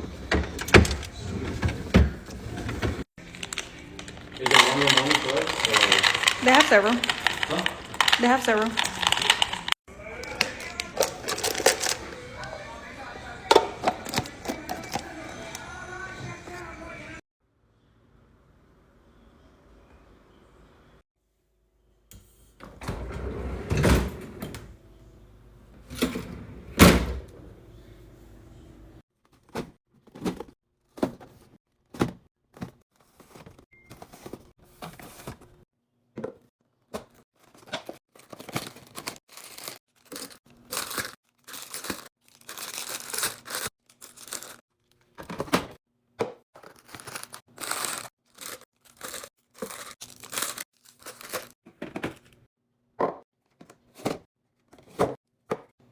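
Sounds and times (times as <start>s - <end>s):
containers knocking and clunking: 0.0s - 12.4s, 13.4s - 15.6s
food packaging crinkling: 3.2s - 12.5s, 13.8s - 15.6s, 37.4s - 45.2s, 46.6s - 51.6s.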